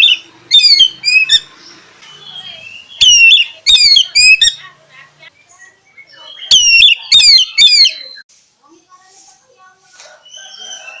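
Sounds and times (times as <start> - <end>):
bird singing whistled notes: 0.0 - 4.6, 5.3 - 8.3.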